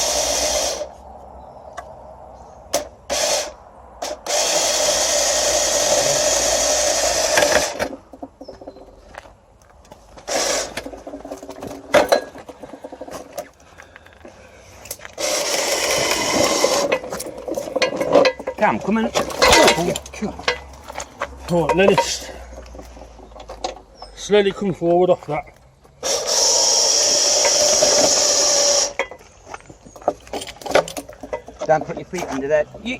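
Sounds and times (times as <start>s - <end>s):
winch whirring: 15.2s - 18.6s, 26.0s - 29.1s.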